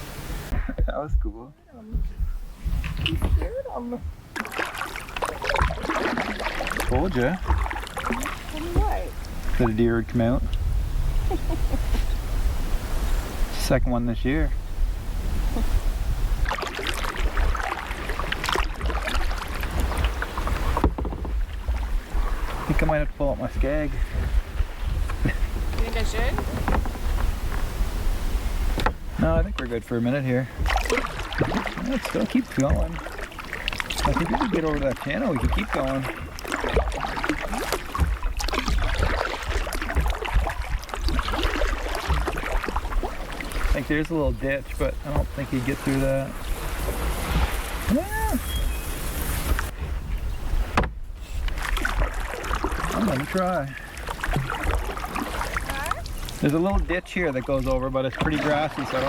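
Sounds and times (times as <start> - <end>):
paddle splashing through water: 2.0 - 59.0
water dripping from paddle: 4.3 - 9.8, 16.4 - 22.9, 30.5 - 49.7, 51.5 - 59.0
steady low rumble: 8.5 - 16.6.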